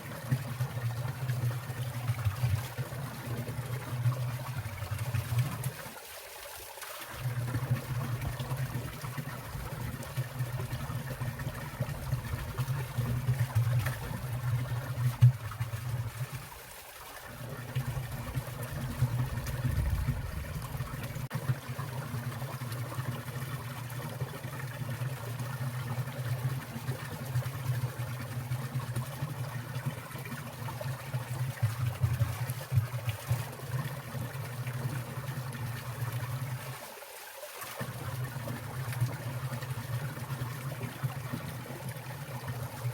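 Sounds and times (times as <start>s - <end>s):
stream trickling and gurgling: 0.0s - 42.9s.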